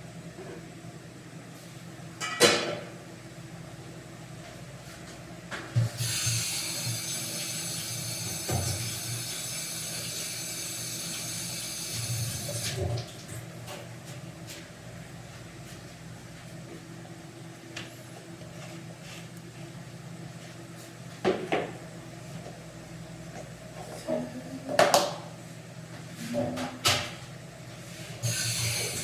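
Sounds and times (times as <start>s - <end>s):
water running: 5.9s - 13.4s, 28.2s - 29.0s.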